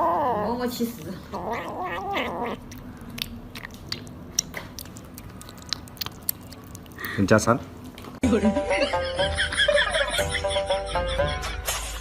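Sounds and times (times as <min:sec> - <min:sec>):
cat yowling: 0:00.0 - 0:00.7, 0:01.3 - 0:02.8
crunchy chewing clicks: 0:01.5 - 0:07.2.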